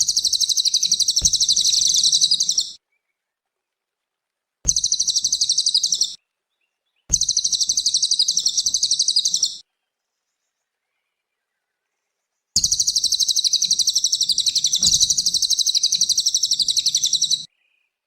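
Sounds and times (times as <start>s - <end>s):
songbird high-pitched trill: 0.0s - 2.8s, 4.7s - 6.2s, 7.1s - 9.6s, 12.6s - 17.5s.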